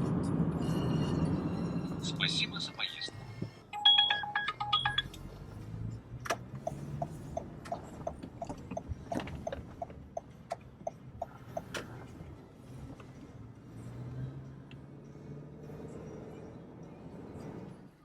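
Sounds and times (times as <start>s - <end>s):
car turn signal ticking: 3.8s - 5.3s, 6.2s - 12.2s.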